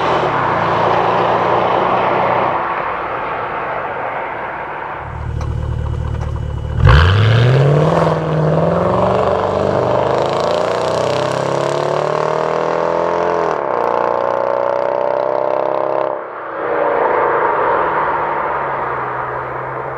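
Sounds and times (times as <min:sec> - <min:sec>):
car engine accelerating: 0:05.0 - 0:16.1.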